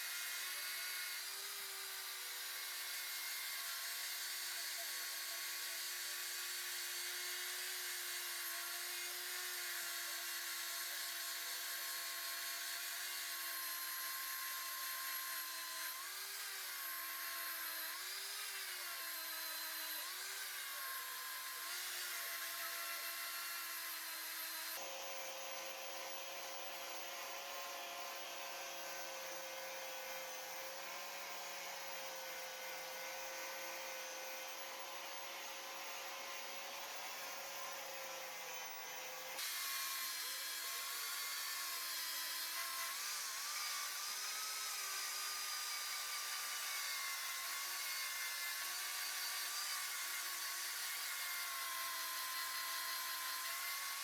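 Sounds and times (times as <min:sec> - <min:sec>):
power tool motor whining: 0:00.0 - 0:54.0.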